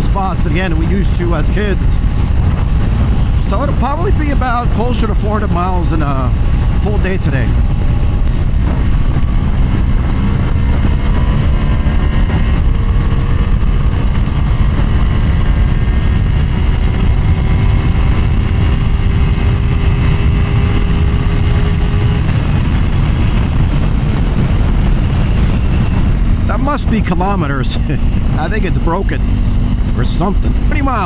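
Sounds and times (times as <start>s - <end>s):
motorcycle engine drone: 0.0s - 31.0s
wind and road noise: 0.0s - 31.0s.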